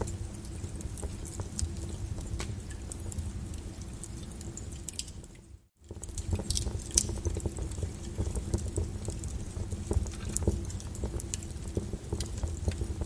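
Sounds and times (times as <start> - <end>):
log fire crackling and popping: 0.0 - 13.0
rain hiss: 5.9 - 13.0.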